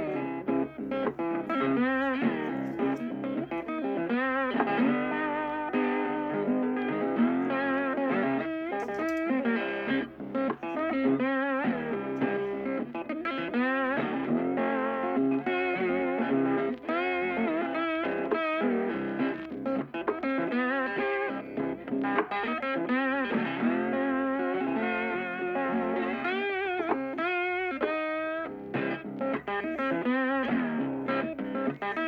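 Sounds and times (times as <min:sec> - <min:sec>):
electric guitar lead with effects: 0:00.0 - 0:32.0.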